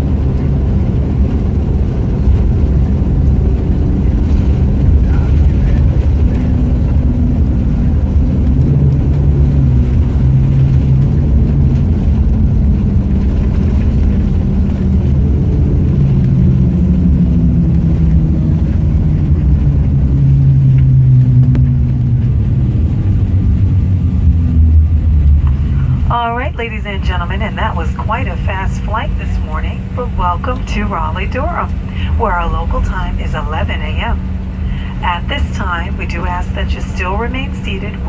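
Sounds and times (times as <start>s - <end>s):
droning engine tones: 0.0s - 38.0s
jet engines rumbling: 0.0s - 38.0s.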